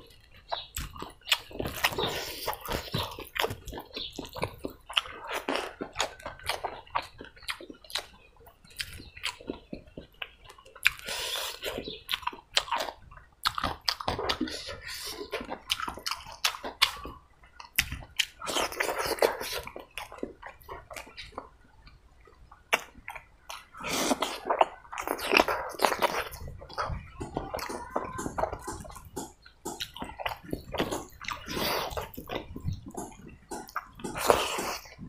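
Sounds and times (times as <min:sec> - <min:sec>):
wet chewing and lip-smacking: 0:00.0 - 0:35.0
fingers squelching food: 0:22.6 - 0:35.0
mouth clicks: 0:22.7 - 0:35.0.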